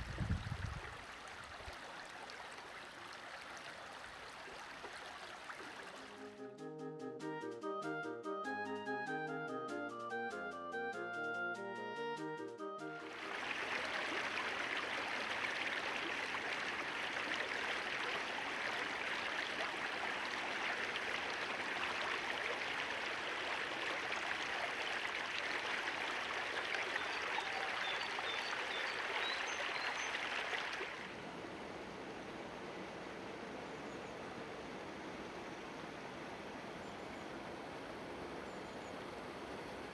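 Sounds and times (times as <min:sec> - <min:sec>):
stream water rushing: 0:00.0 - 0:06.4, 0:13.0 - 0:38.4
faint high bird calls: 0:26.7 - 0:30.5.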